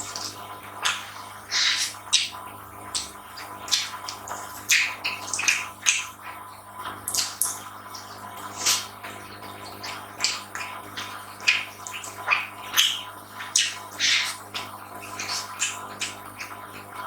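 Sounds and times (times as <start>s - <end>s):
faint electrical hum: 0.0s - 17.0s
wet chewing and lip smacks: 7.1s - 8.9s, 9.8s - 16.6s.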